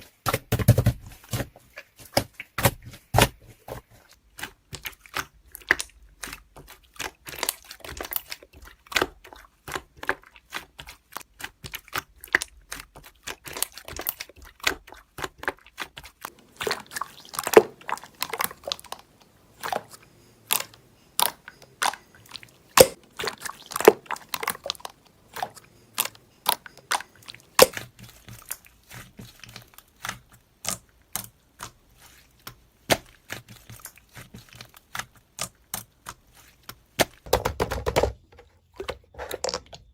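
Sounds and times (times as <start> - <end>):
slime clicking and popping: 20.5 - 28.6.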